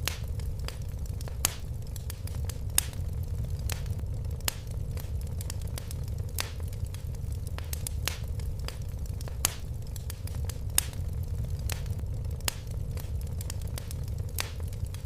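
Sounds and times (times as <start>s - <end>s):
fireplace fire crackling: 0.0s - 15.0s.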